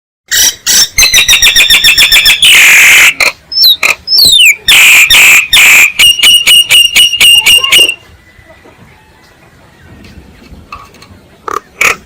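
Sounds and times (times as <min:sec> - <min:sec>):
myna harsh rasping call: 0:00.3 - 0:08.0
myna chattering notes: 0:01.7 - 0:08.0
downward sliding whistles: 0:04.2 - 0:08.0.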